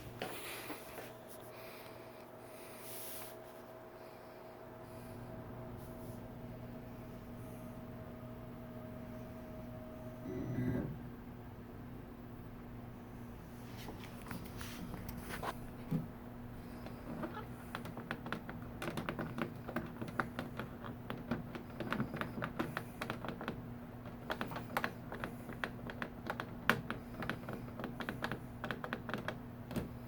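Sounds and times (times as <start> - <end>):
printer humming: 4.7 - 11.4.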